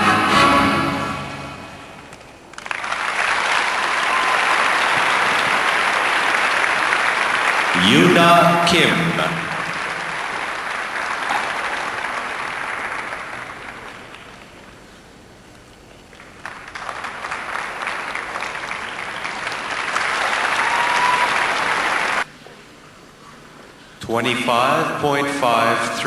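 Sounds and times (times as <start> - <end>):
audience applauding: 2.1 - 14.9, 15.9 - 22.3.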